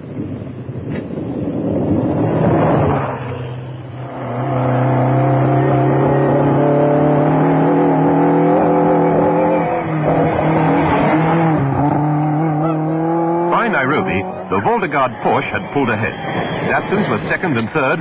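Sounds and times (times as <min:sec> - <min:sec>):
engine at high revs: 0:01.8 - 0:18.0
rally car driving past: 0:02.1 - 0:14.9.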